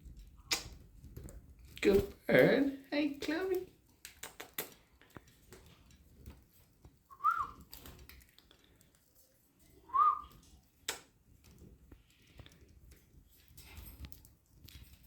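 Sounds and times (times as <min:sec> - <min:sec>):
budgerigar whistled chirps: 0:07.2 - 0:07.6.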